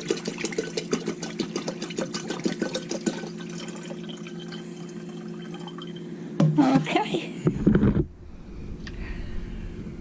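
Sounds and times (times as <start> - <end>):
liquid pouring and splashing: 0.0 - 6.0.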